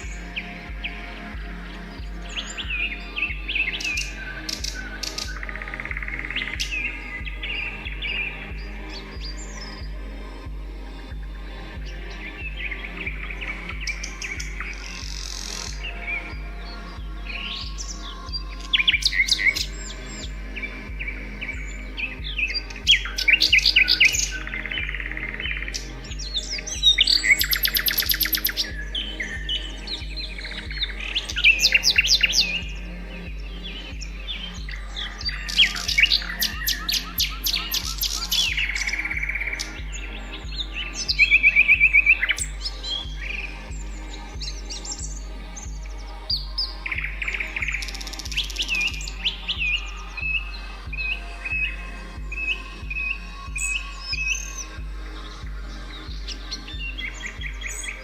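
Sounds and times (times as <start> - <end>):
low even pulse: 0.0 - 58.0
soft low music bed: 0.0 - 58.0
songbirds chirping and singing: 0.0 - 58.0
buzzy bird trills: 11.6 - 58.0.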